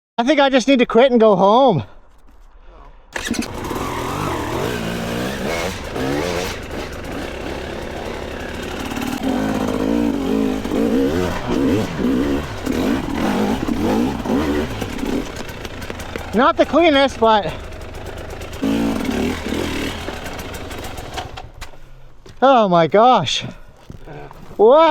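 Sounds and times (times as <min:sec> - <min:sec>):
dirt bike engine revving: 0:03.2 - 0:21.6.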